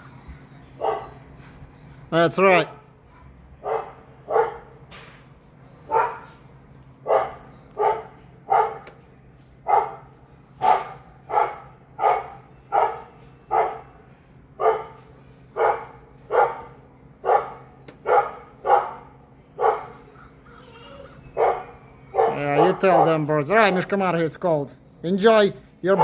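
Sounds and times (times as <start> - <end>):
dog barking: 0.8 - 1.2, 3.6 - 4.8, 5.9 - 6.4, 7.0 - 8.9, 9.6 - 13.9, 14.6 - 15.0, 15.6 - 20.0, 21.3 - 23.3.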